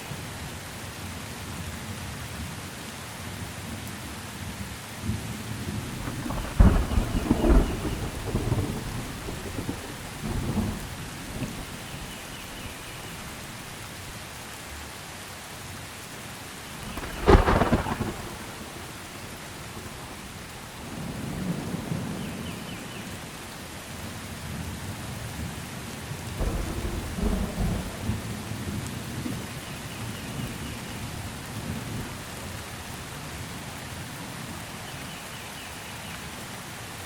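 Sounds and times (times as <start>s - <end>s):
steady rain: 0.0s - 37.0s
thunderclap: 5.1s - 12.8s, 16.8s - 20.3s, 26.4s - 29.4s
rolling thunder rumbles: 5.1s - 13.8s, 16.7s - 22.4s, 26.2s - 32.6s.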